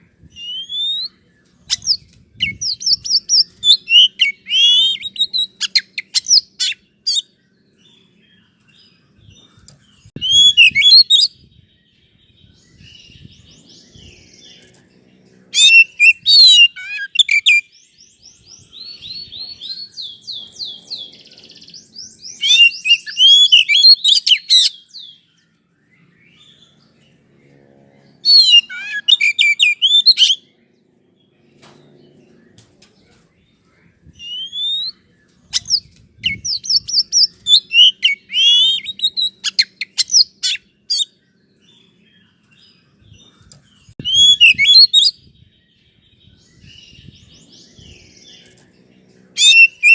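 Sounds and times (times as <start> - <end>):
bird whistles and trills: 0.0 - 7.3, 8.4 - 11.7, 15.5 - 25.3, 28.2 - 30.5, 34.0 - 49.9.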